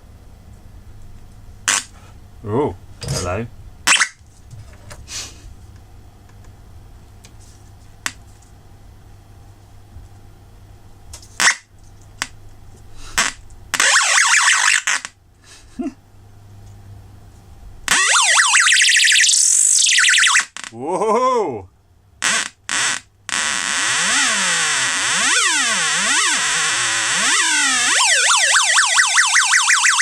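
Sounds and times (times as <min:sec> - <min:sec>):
low electronic hum: 0:05.6 - 0:30.0
harsh electronic screeching: 0:18.0 - 0:20.4, 0:22.3 - 0:30.0.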